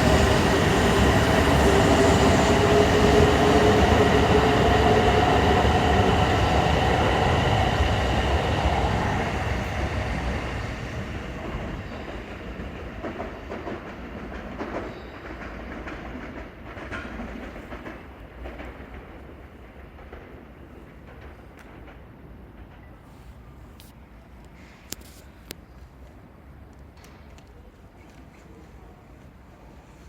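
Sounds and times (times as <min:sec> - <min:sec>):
train running gear rumble: 0:00.0 - 0:23.6.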